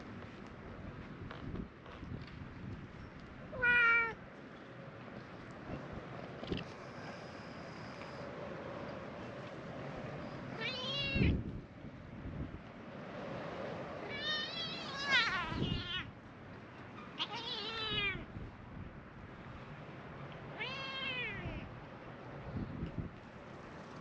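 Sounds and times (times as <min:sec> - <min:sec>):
cats meowing: 0:03.5 - 0:04.2, 0:10.5 - 0:11.4, 0:14.0 - 0:16.1, 0:17.2 - 0:18.3, 0:20.5 - 0:21.7.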